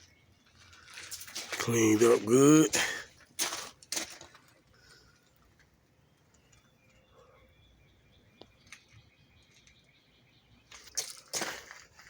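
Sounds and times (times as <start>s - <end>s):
faint bird chirps: 6.0s - 10.9s.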